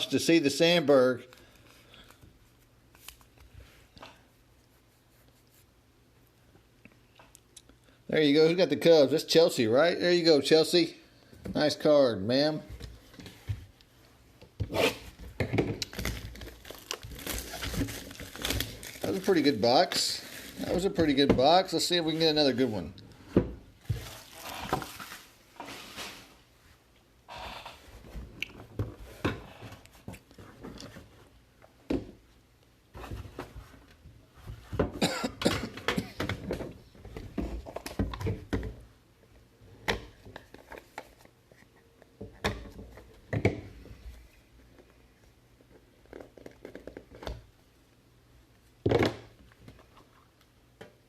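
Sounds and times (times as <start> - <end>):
cardboard packaging being opened: 15.8 - 21.2, 23.9 - 26.4.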